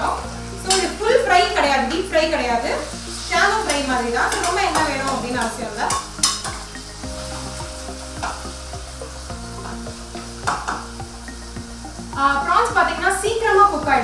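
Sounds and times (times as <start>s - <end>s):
prawns sizzling in oil: 0.0s - 14.0s
steel spoon scraping pan: 3.3s - 7.6s.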